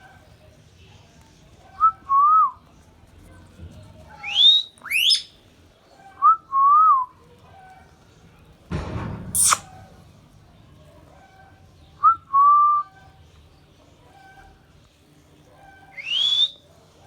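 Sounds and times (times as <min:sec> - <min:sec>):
parrot screech: 0:04.2 - 0:05.3, 0:09.4 - 0:09.8
parrot whistling: 0:04.2 - 0:05.3, 0:09.4 - 0:09.7, 0:16.0 - 0:16.6.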